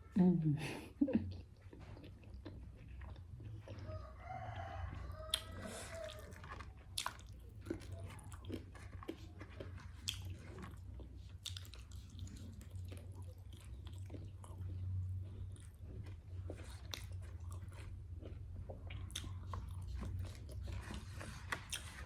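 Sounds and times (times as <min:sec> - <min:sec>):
chewing and biting with crunches: 0:01.3 - 0:22.0
rooster crowing: 0:03.8 - 0:06.4.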